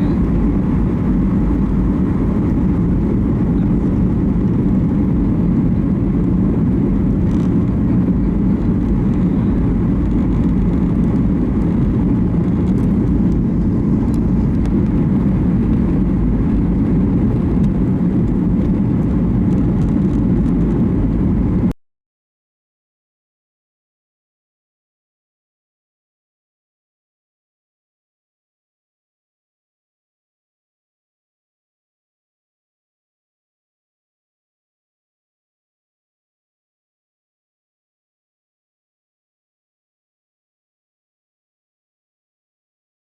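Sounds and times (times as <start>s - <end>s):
airliner engines and rushing air: 0.0s - 21.8s.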